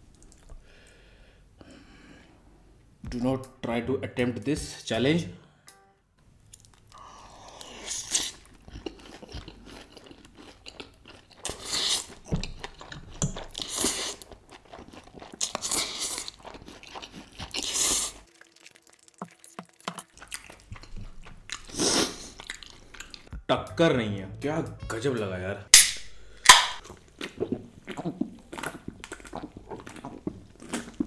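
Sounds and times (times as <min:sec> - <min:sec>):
wet chewing: 0:06.5 - 0:23.3, 0:26.4 - 0:31.0
slurping noodles: 0:15.0 - 0:21.0, 0:21.6 - 0:22.4.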